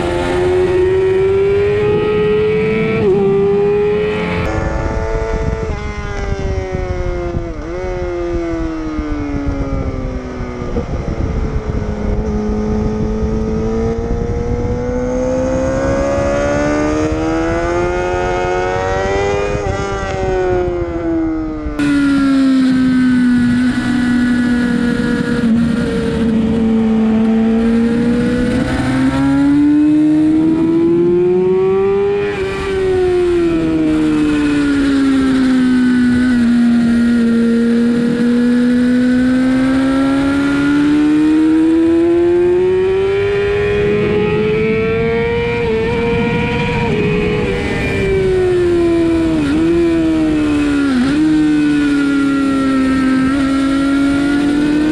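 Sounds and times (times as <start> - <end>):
sportbike engine accelerating: 0.0 - 9.8, 10.6 - 54.9
wind rushing over microphone: 0.0 - 54.9.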